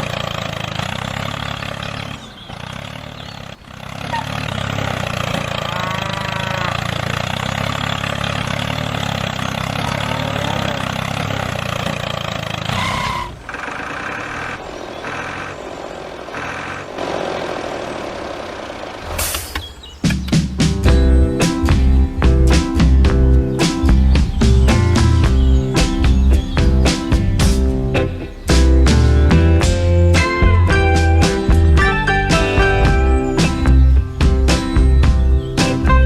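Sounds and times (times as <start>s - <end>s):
small engine running: 0.0s - 19.3s.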